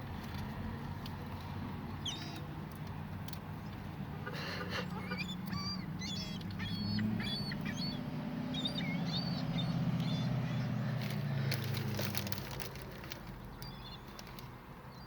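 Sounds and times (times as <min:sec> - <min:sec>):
gulls calling: 0:04.2 - 0:12.2.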